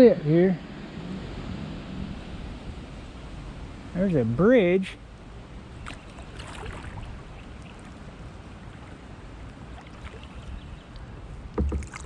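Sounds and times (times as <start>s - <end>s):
small splashes and drips: 5.8s - 11.1s, 11.7s - 12.0s
paddle strokes in water: 5.8s - 12.0s.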